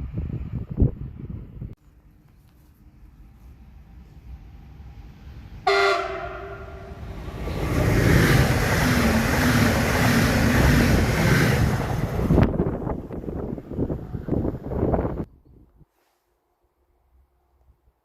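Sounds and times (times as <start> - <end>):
train passing at speed: 3.1 - 15.3
train horn blast: 5.6 - 7.0.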